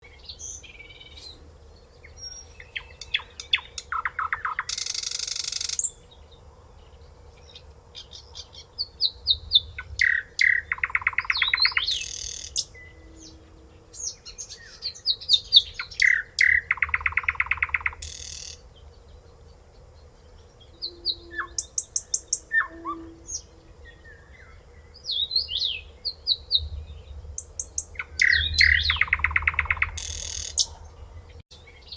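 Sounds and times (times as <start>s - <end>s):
nightingale singing: 0.0s - 31.9s.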